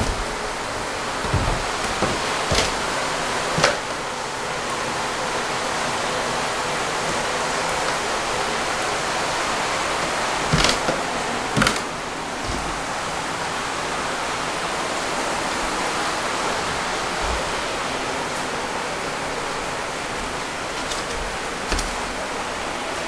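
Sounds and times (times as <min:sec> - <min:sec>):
sharp knocks: 0:00.0 - 0:04.0, 0:09.9 - 0:13.2
heavy rain pouring: 0:00.0 - 0:23.0.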